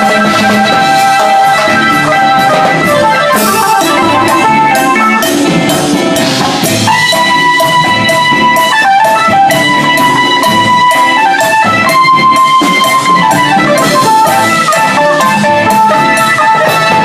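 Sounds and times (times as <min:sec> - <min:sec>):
drums and percussion: 0:00.0 - 0:17.0.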